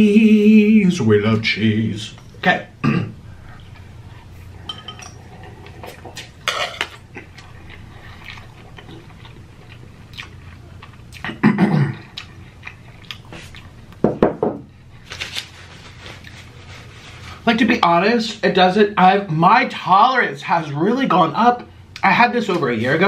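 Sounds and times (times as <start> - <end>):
chewing noodles: 5.2 - 11.3, 12.0 - 14.0.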